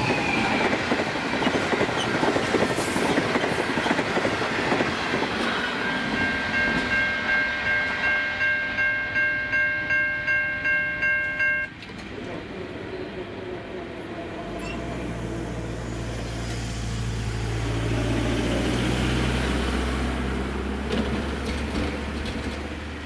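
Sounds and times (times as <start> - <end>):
crossing bell ringing: 5.6 - 11.8
train wheels clattering: 20.8 - 22.9.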